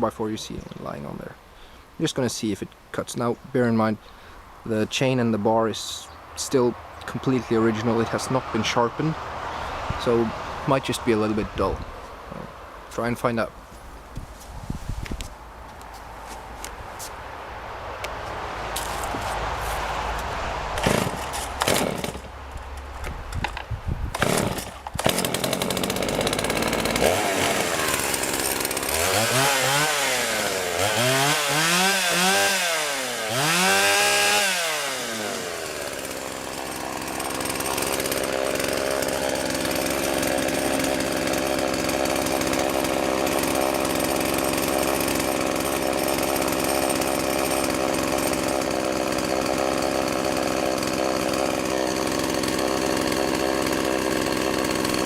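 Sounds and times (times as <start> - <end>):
chainsaw revving: 20.7 - 22.4, 24.1 - 55.0.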